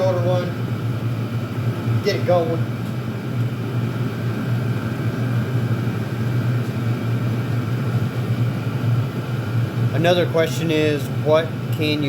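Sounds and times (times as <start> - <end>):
air heaters droning: 0.0 - 12.0.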